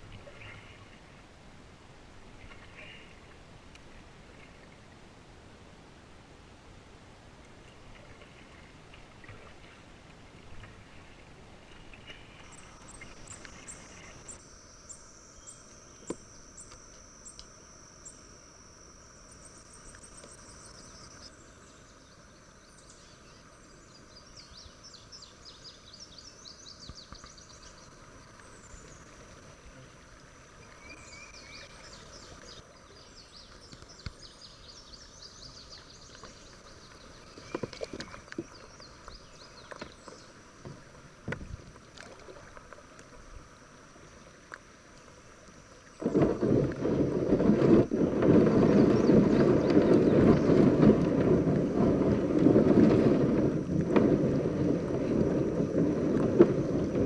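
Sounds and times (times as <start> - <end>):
insects droning: 11.0 - 57.0
high chirps and trills: 12.5 - 24.2.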